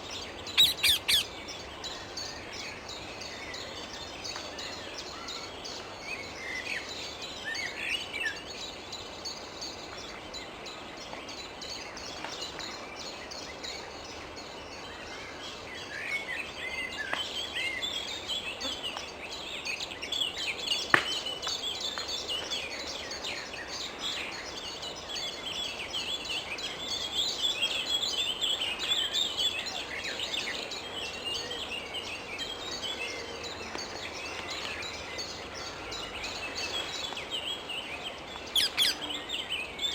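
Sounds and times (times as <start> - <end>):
parakeets chirping: 0.6 - 1.3, 38.6 - 39.1.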